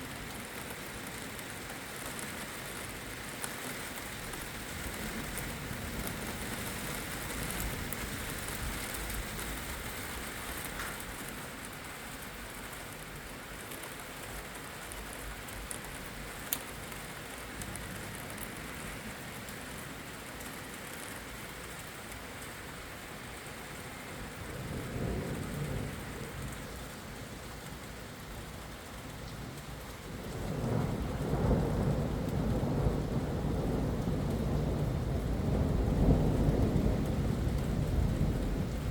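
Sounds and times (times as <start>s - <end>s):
steady rain: 0.0s - 38.9s
thunder rumbling: 24.2s - 27.4s, 30.1s - 38.9s.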